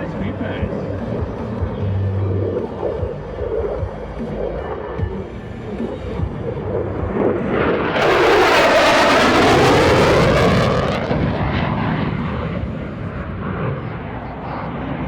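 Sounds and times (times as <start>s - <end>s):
fighter jet passing low: 5.7s - 15.0s.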